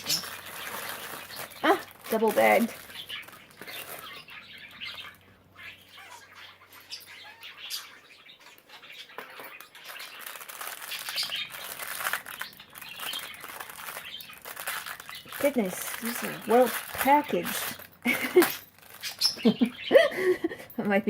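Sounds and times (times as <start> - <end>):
plastic packaging crinkling: 0.0 - 5.2, 8.8 - 19.7
budgerigars chirping: 0.0 - 17.4, 18.9 - 20.1.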